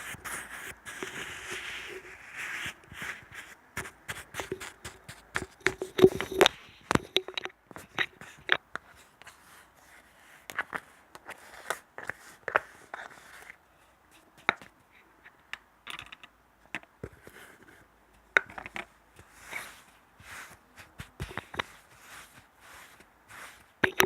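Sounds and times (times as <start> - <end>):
scratchy rustles: 0.0 - 6.9, 19.2 - 24.0.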